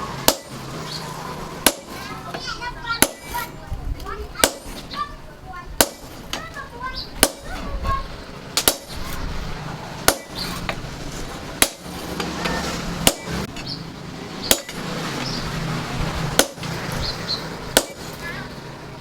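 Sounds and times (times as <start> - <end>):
hammer striking steel: 0.0 - 3.6, 4.3 - 5.1, 5.8 - 7.8, 8.6 - 9.3, 10.0 - 13.8, 14.4 - 14.9, 16.3 - 18.4.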